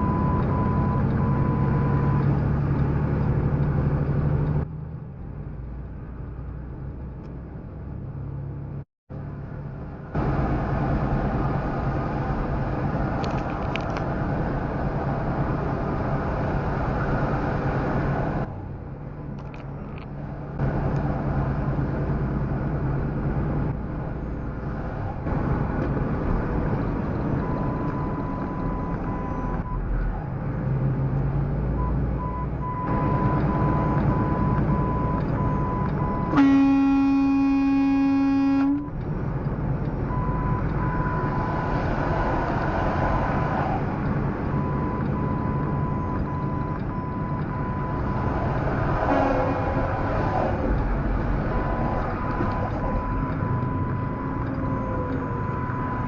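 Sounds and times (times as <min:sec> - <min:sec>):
truck engine hum: 0:00.0 - 0:56.0
vehicle horn blast: 0:36.3 - 0:38.9, 0:49.1 - 0:49.9.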